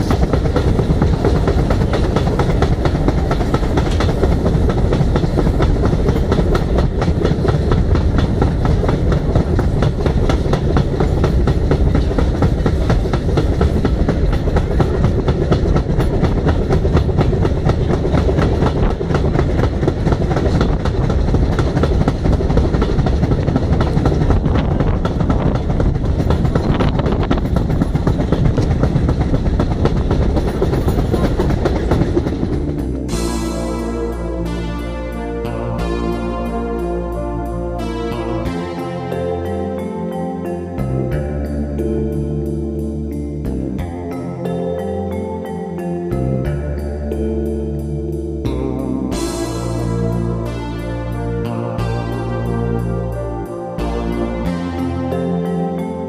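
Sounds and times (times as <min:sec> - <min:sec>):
wind rushing across microphone: 0:00.0 - 0:34.4
wheels clattering over rails: 0:00.0 - 0:42.2.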